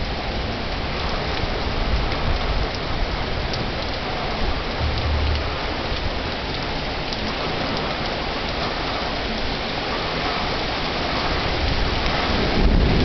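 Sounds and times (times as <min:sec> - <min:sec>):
heavy rain falling: 0:00.0 - 0:13.0
rain drop ticks: 0:00.0 - 0:13.0
low rumble: 0:04.3 - 0:06.8.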